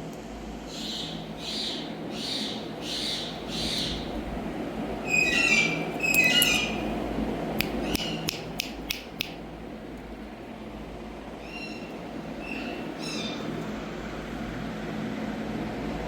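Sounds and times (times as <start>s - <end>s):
parakeet chirping: 0.7s - 4.2s, 5.0s - 7.0s, 7.7s - 8.6s, 11.4s - 13.6s
sharp clicks: 7.6s - 9.4s.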